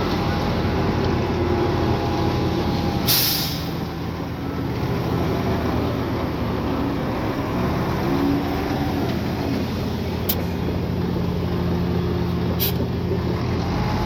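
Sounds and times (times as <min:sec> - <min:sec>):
heavy diesel engine running: 0:00.0 - 0:14.0
short hiss: 0:03.1 - 0:03.8, 0:12.6 - 0:12.8.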